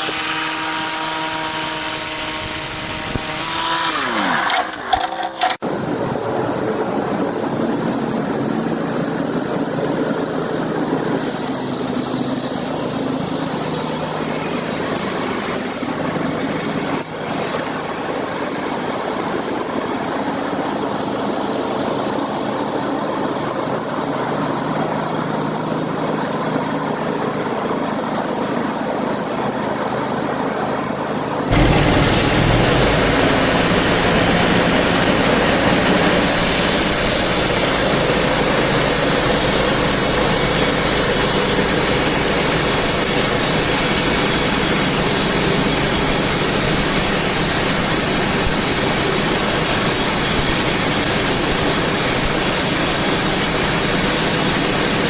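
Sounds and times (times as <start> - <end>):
engine running: 0.0 - 5.6, 31.5 - 55.0.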